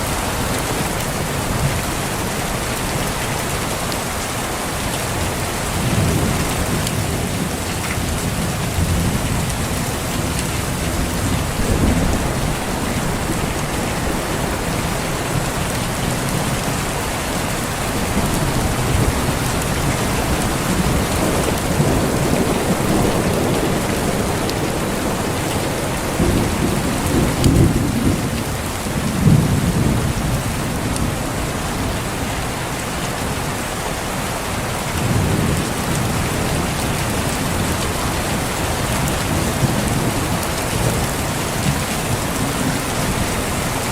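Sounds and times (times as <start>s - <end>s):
heavy rain falling: 0.0s - 43.9s
rolling thunder: 5.7s - 32.0s.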